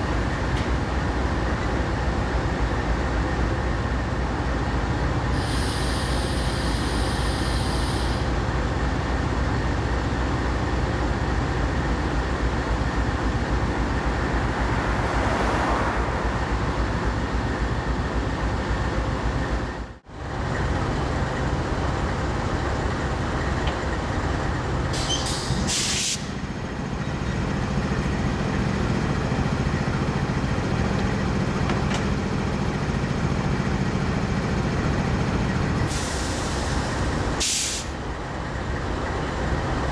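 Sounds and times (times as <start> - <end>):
diesel locomotive running: 0.0 - 39.9
short air hisses: 5.4 - 8.3, 25.0 - 26.4, 35.9 - 38.0.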